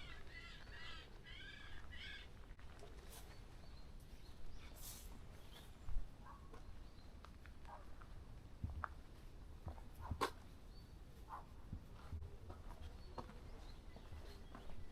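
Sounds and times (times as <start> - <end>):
forest bird calling: 0.0 - 2.4
faint bird sounds: 0.0 - 7.8, 12.7 - 14.9.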